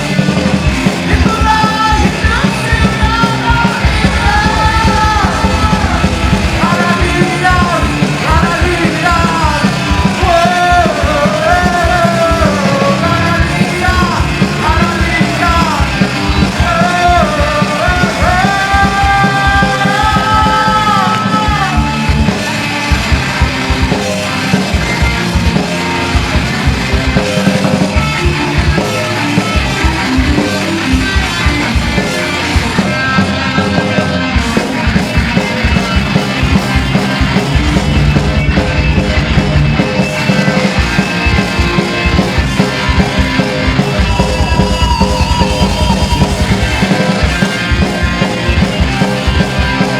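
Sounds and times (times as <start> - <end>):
electric guitars: 0.0 - 49.9
steady drum beat: 0.0 - 49.9
person singing: 1.0 - 22.2.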